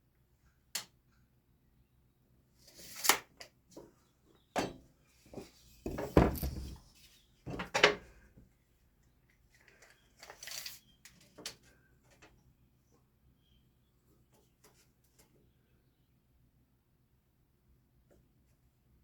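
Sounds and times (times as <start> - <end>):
wooden pickets knocking and scraping: 5.8 - 6.8.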